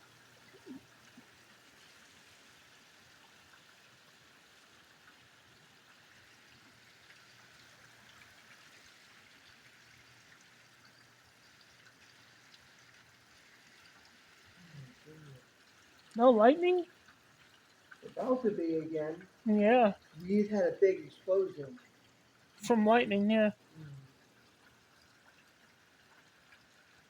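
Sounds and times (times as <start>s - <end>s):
heavy rain hiss: 14.5s - 16.8s, 18.0s - 21.8s, 22.6s - 24.2s.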